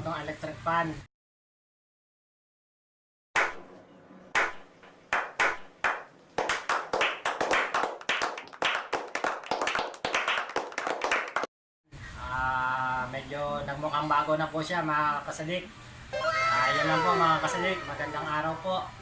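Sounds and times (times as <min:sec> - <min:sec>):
hands clapping: 0:03.4 - 0:03.7, 0:04.4 - 0:11.5.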